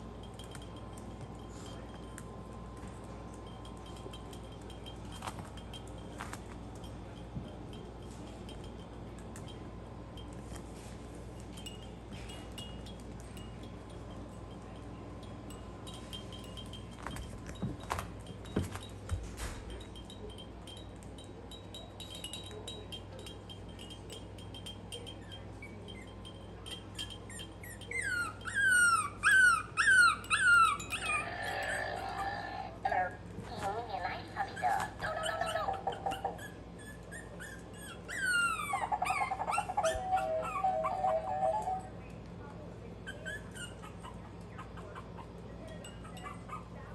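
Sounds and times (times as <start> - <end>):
puppies whimpering: 27.0 - 32.8, 34.3 - 42.0, 43.0 - 46.9.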